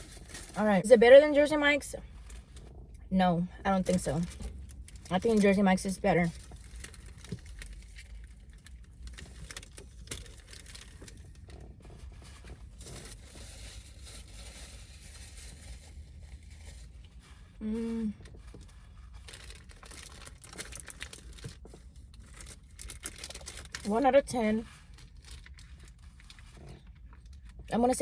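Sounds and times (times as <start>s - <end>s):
paper wrapper crinkling: 0.0s - 2.8s, 3.7s - 27.7s
person humming: 17.6s - 18.1s.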